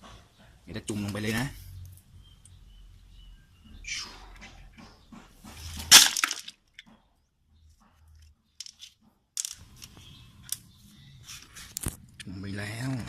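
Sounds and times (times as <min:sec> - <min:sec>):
clicks and rustles: 0:04.4 - 0:07.1, 0:07.7 - 0:10.7.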